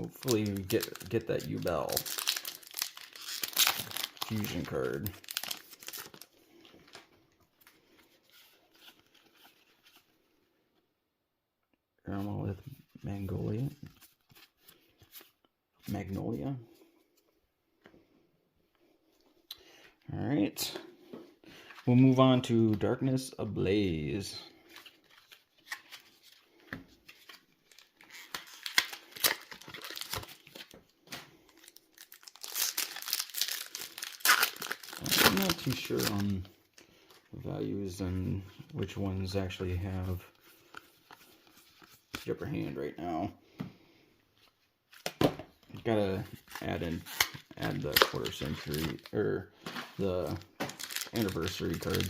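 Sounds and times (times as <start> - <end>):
foil wrapper crinkling: 0.0 - 6.3, 27.2 - 30.8, 31.5 - 36.4, 50.2 - 52.0
cards rustling and ticking: 0.0 - 10.1, 24.6 - 37.3, 45.0 - 52.0.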